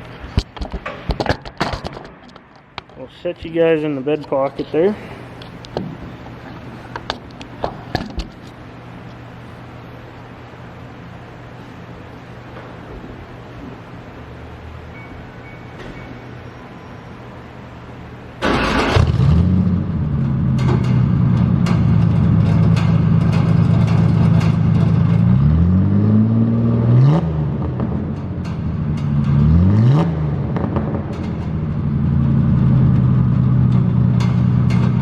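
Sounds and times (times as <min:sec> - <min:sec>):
truck engine starting and revving: 0:18.4 - 0:35.0.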